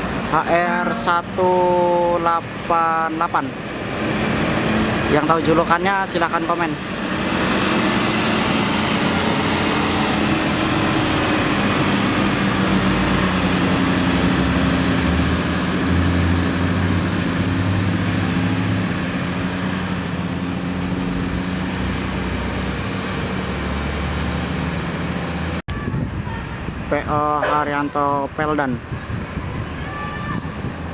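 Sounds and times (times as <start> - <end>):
diesel bus engine running: 0.0 - 26.9.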